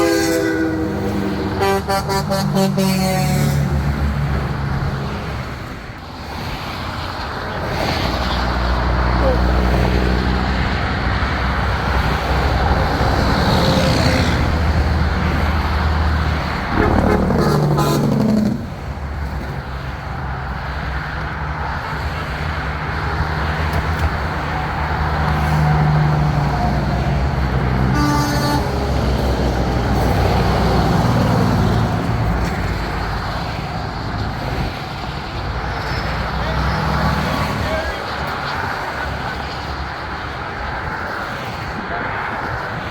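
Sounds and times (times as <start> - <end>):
truck air horn blast: 0.0 - 3.8, 16.7 - 18.8, 27.8 - 29.3
diesel trucks rolling past: 0.0 - 42.9.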